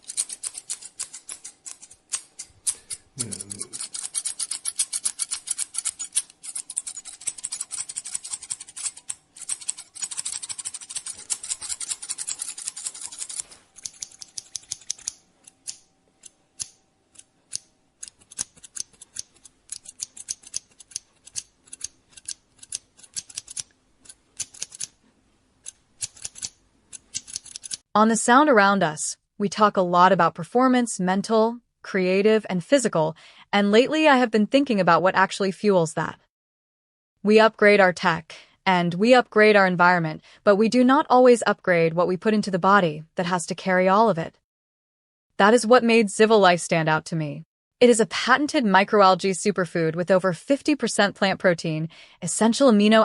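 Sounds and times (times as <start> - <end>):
scissors snipping through hair: 0.0 - 25.0, 25.6 - 27.9.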